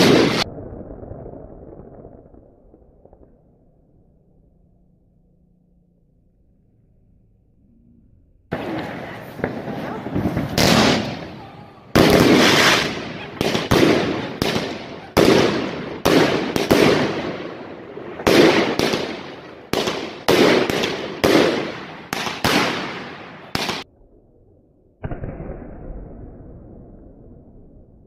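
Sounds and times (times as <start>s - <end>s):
fireworks bangs: 0.0s - 3.8s, 8.5s - 23.8s.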